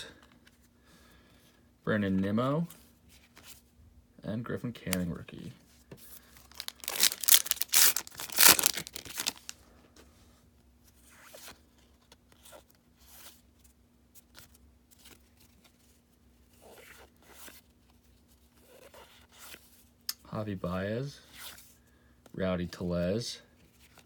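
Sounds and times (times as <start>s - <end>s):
cards rustling: 6.3s - 9.6s
wrapper tearing: 6.4s - 9.6s.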